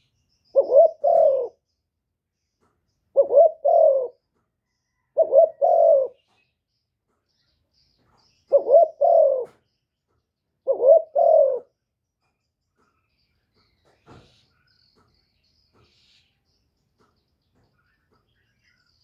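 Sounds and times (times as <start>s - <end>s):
dove cooing: 0.5s - 1.6s, 3.1s - 4.2s, 4.9s - 6.2s, 8.5s - 9.6s, 10.6s - 11.7s.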